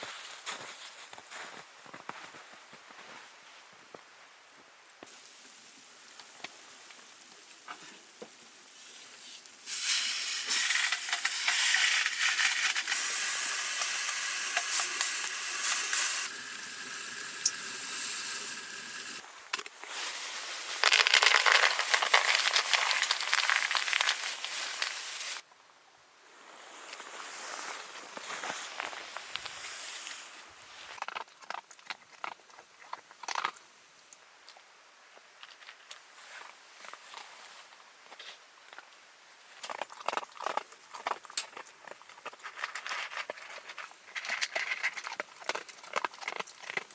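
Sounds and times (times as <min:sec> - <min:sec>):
loud crackling hiss: 0:09.6 - 0:19.2, 0:19.9 - 0:25.4.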